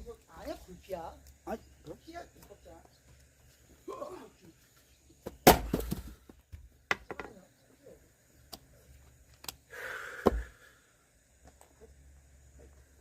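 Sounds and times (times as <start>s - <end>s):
axe splitting wood: 5.4s - 6.1s.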